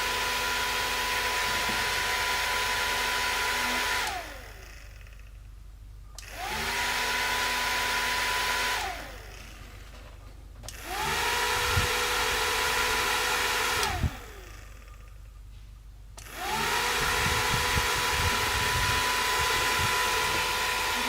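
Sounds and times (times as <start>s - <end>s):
small fan motor whining: 0.0s - 21.0s
click: 6.1s - 6.3s, 10.6s - 10.8s.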